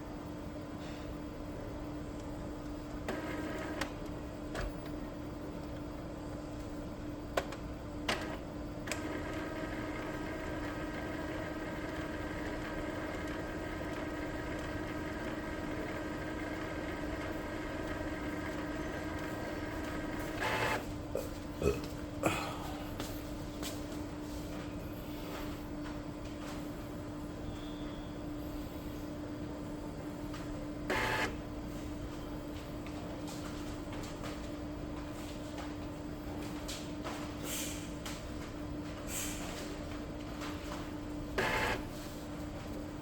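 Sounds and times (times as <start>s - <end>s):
printer motor whirring: 2.9s - 5.0s, 7.4s - 21.1s, 30.6s - 31.7s, 41.0s - 42.8s.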